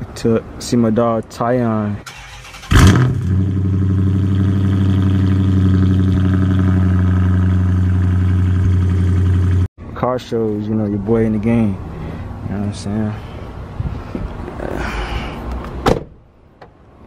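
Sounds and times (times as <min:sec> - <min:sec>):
truck engine starting and idling: 0:02.0 - 0:09.7.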